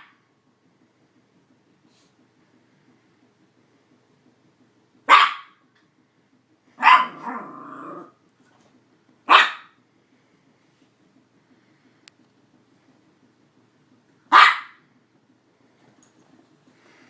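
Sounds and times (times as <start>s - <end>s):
dog barking: 5.1s - 5.6s, 6.8s - 7.4s, 9.3s - 9.8s, 14.3s - 14.8s.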